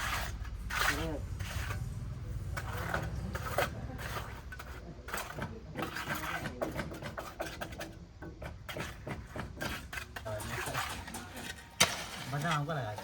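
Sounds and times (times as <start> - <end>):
low steady rumble: 0.0 - 4.8
scraping and knocking on timber: 2.5 - 13.0.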